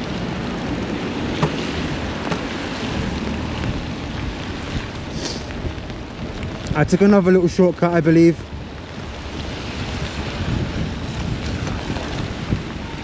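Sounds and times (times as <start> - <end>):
wind buffeting microphone: 0.0 - 13.0
tyre hiss on wet road: 5.1 - 5.6.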